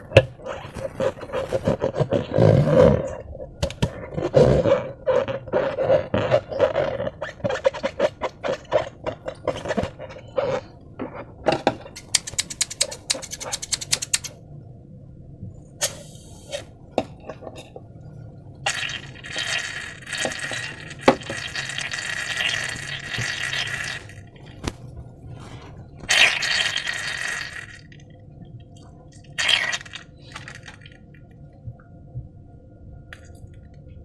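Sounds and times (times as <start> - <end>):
thick slime pouring and squelching: 18.7 - 24.6, 25.5 - 27.9, 29.3 - 30.9.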